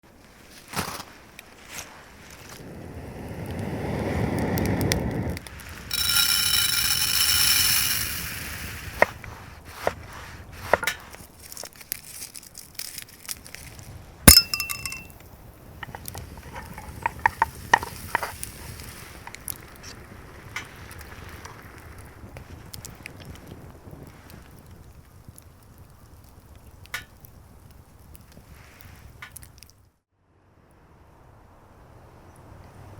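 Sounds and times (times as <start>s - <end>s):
high ringing tone: 5.9s - 8.6s, 14.3s - 15.1s
clinks and knocks of hard objects: 5.9s - 9.1s, 14.3s - 15.2s, 15.8s - 18.4s.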